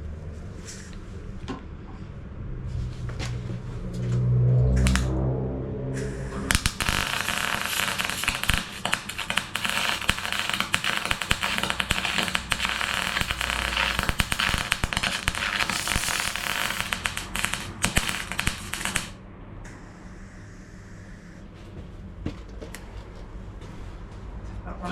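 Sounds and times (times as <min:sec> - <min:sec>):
welding arc crackling: 0:04.8 - 0:05.1, 0:06.0 - 0:19.2.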